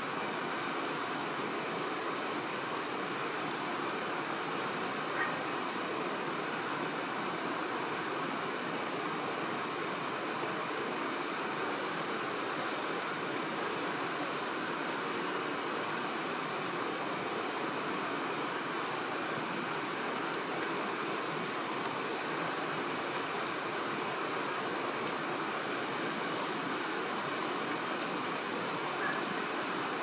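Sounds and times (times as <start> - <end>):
wood fire crackling and popping: 17.2 - 25.2.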